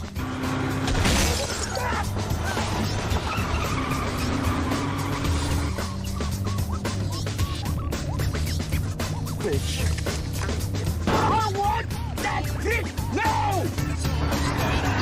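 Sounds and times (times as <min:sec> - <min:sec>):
car engines running: 0:00.0 - 0:15.0
dramatic music: 0:00.0 - 0:15.0
tyre squeals: 0:02.4 - 0:06.7.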